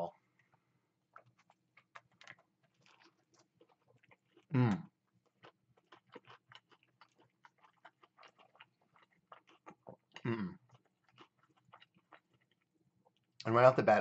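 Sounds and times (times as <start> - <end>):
man chewing crunchy food: 0.1 - 13.4
man humming: 4.5 - 4.8.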